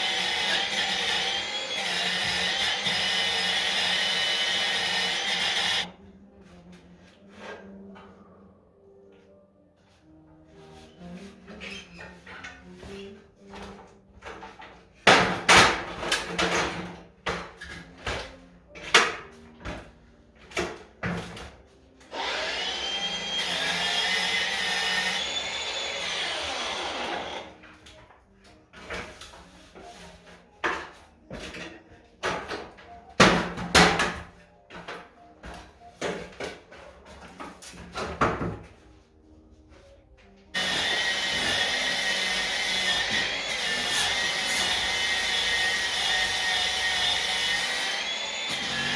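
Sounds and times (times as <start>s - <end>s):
whirring power tool: 0.0s - 5.9s, 22.1s - 27.5s, 40.6s - 48.9s.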